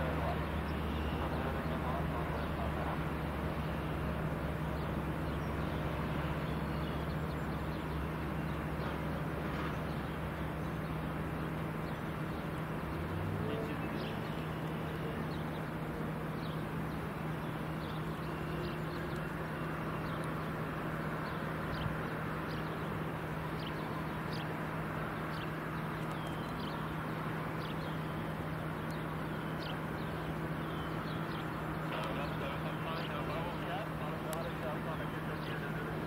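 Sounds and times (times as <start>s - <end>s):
outdoor rumble: 0.0s - 36.0s
bird chirping: 9.7s - 36.0s.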